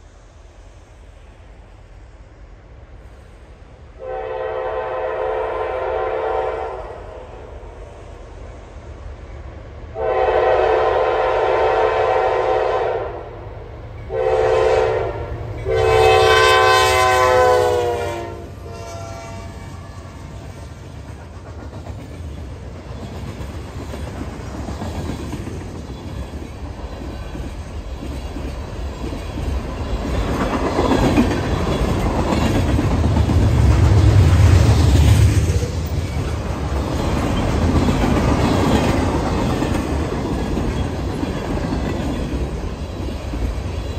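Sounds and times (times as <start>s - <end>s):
locomotive air horn: 4.0s - 7.0s, 10.0s - 13.3s, 14.1s - 20.2s
train wheels clattering on rails: 18.7s - 43.9s.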